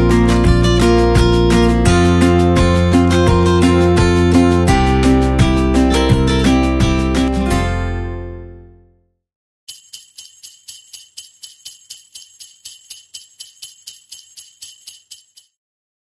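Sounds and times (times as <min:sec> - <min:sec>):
acoustic guitar tune: 0:00.0 - 0:08.5
jingle bells shaken: 0:09.7 - 0:15.6.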